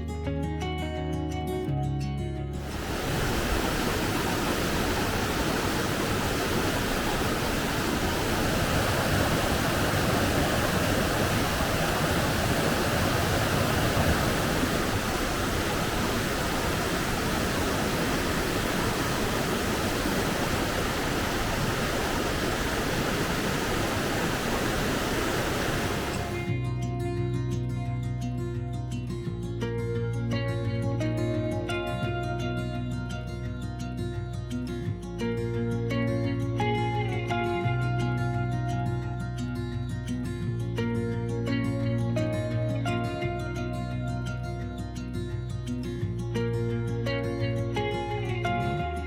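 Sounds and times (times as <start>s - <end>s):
waterfall rushing: 2.6s - 26.5s.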